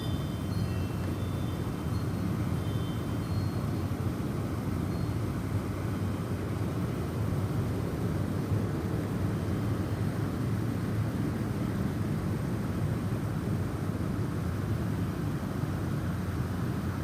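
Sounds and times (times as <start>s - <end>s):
faint wind chime tones: 0.0s - 6.2s.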